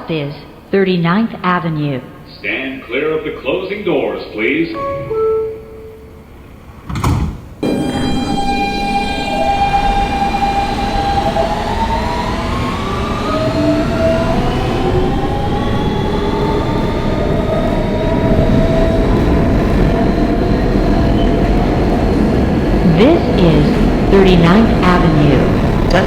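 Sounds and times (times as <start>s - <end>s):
subway train propulsion whine: 0.0s - 26.0s
wheels rumbling on rails: 7.6s - 26.0s.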